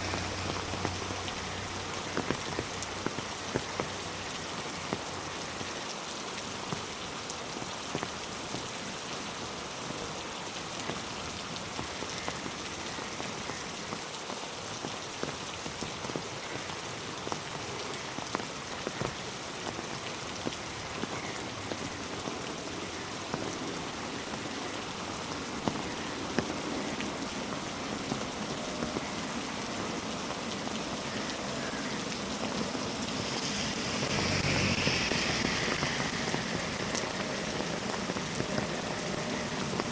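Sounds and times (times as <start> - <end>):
raindrops ticking: 0.0 - 9.2, 9.8 - 39.9
steady rainfall: 0.0 - 39.9.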